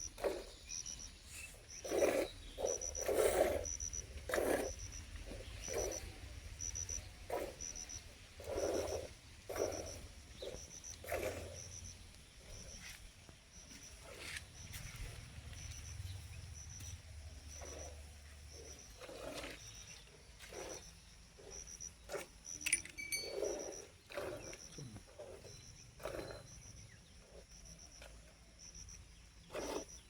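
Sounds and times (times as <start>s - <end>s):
faint high chirp: 0.0s - 4.1s, 4.7s - 8.1s, 20.7s - 29.2s
cattle puffing and grunting: 0.0s - 28.4s, 29.4s - 30.0s.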